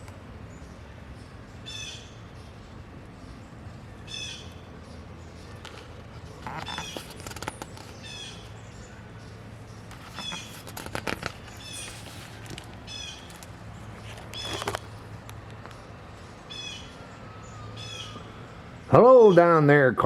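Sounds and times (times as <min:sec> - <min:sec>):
bird calling: 0:00.0 - 0:19.7
rustling: 0:05.6 - 0:08.1, 0:09.8 - 0:15.8.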